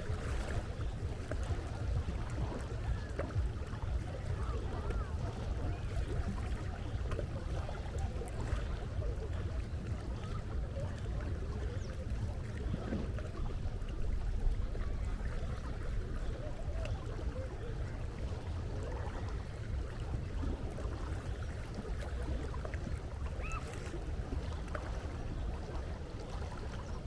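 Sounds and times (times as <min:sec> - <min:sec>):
faint distant voices: 0:00.0 - 0:27.0
wind and water rumble: 0:00.0 - 0:27.0.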